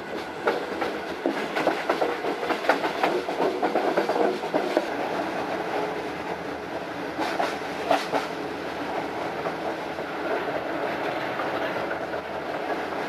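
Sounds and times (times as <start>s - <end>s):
train rumbling on rails: 0.0s - 13.0s
wheels clacking and knocking: 0.4s - 4.9s.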